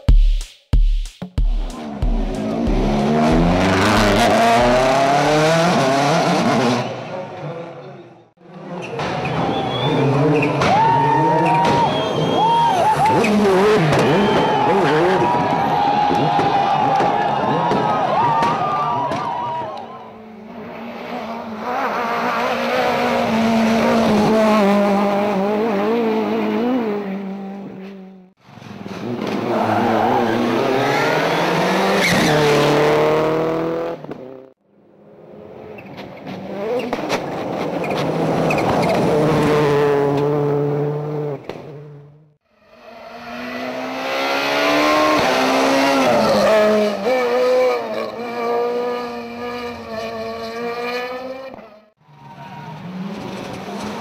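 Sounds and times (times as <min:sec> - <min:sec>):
rally car engines revving: 0:01.7 - 0:18.4, 0:20.1 - 0:54.0.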